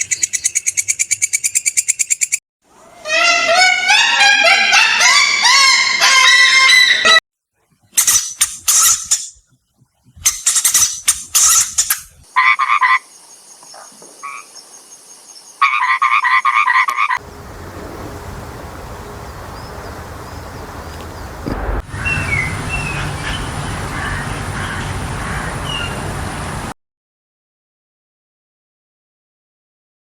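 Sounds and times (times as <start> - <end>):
frogs croaking: 12.3 - 26.7
steady noisy hiss: 17.2 - 26.7.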